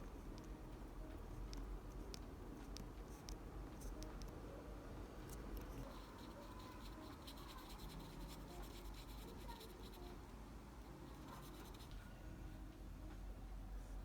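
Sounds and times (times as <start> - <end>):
pencil scratching on paper: 5.7 - 10.3, 11.1 - 11.9.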